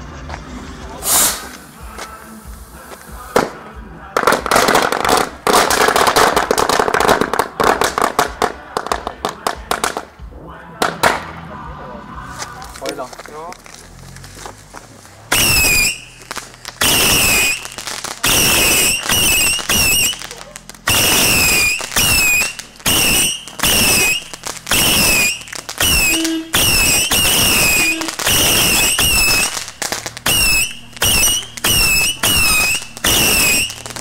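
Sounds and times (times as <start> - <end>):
whistling fireworks: 0.8 - 10.1, 15.3 - 34.0.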